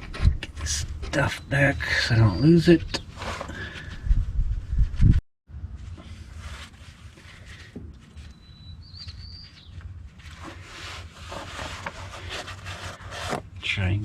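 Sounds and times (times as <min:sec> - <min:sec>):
bird whistled call: 0:08.2 - 0:09.7.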